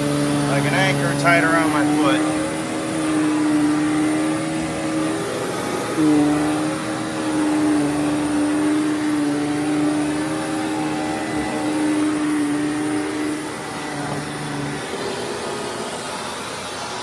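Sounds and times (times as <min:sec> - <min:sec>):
vacuum cleaner motor hum: 0:00.0 - 0:17.0.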